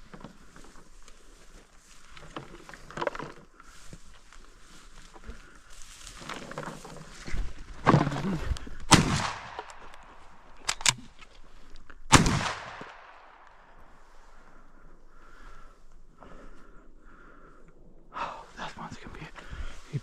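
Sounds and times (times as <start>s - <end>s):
sharp clicks: 8.6s - 13.6s
shotgun shots: 8.9s - 9.9s, 12.1s - 13.4s.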